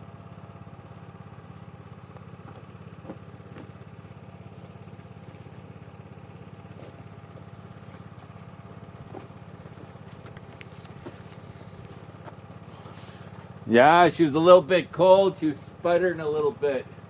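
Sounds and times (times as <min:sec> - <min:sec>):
generator engine running: 0:00.0 - 0:17.0.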